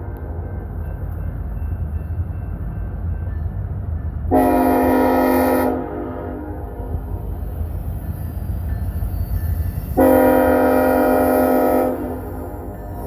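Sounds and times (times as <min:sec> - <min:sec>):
diesel train rumbling: 0:00.0 - 0:13.0
train horn blast: 0:04.3 - 0:07.3, 0:10.0 - 0:13.0.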